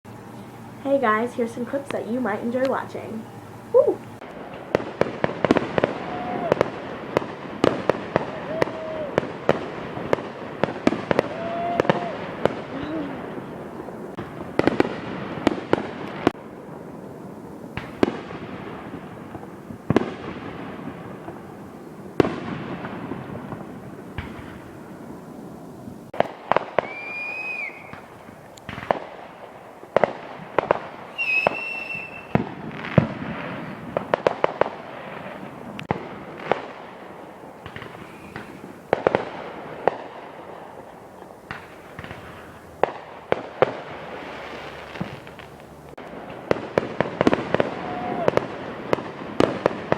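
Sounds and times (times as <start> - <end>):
fireworks bangs and crackles: 0.3 - 49.9
firework whistles: 2.9 - 16.4, 26.2 - 35.8, 37.5 - 45.9, 47.0 - 49.9.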